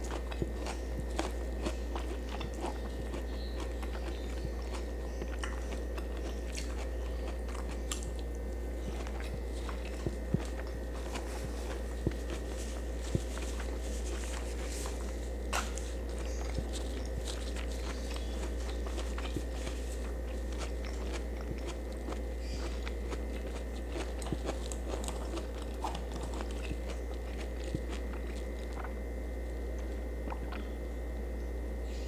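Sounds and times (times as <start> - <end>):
wet chewing with crunches: 0.0 - 31.1
steady low hum: 0.0 - 32.0.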